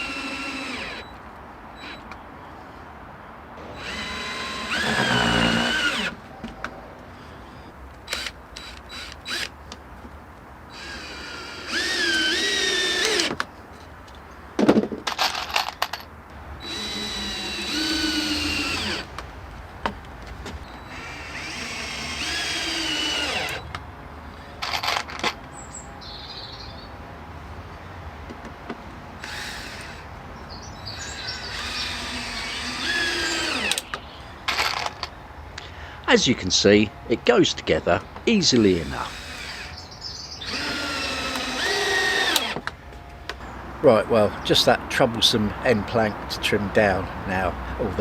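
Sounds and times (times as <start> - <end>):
power drill whining: 0.0 - 1.2, 1.8 - 2.0, 3.6 - 6.2, 7.5 - 9.5, 10.7 - 13.4, 16.6 - 19.1, 20.7 - 23.7, 29.2 - 30.0, 31.1 - 33.9, 38.6 - 39.8, 40.4 - 42.7.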